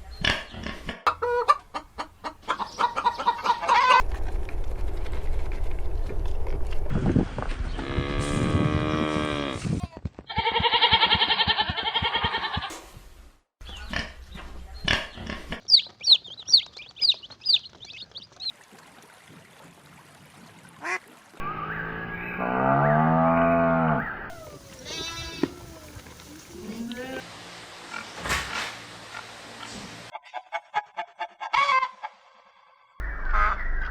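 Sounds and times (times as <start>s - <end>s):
cow mooing: 7.8s - 9.6s, 22.4s - 25.6s
quick high chirps: 15.7s - 18.5s
wavering animal call: 21.6s - 27.2s.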